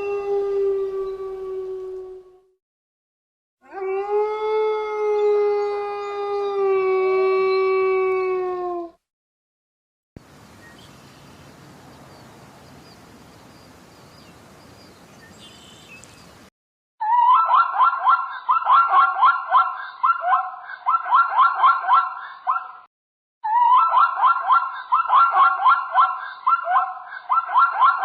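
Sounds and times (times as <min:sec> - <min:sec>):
dog howling: 0:00.0 - 0:02.6, 0:03.6 - 0:09.0.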